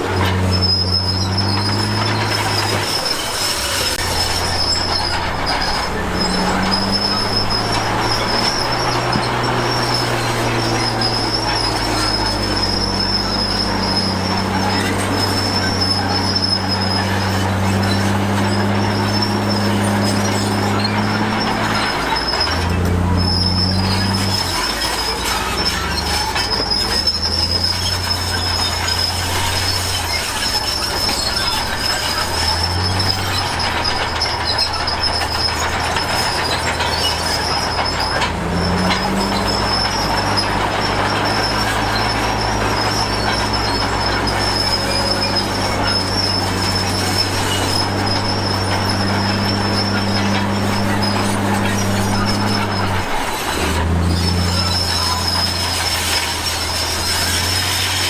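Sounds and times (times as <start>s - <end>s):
bulldozer diesel engine under load: 0.0s - 58.0s
steel tracks squealing: 0.0s - 58.0s.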